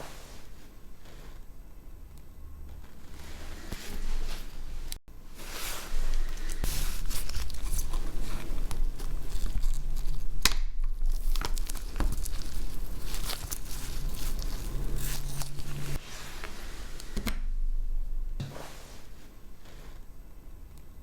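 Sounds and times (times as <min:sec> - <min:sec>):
steady low hum: 0:00.0 - 0:21.0
tearing and crinkling: 0:03.6 - 0:16.5.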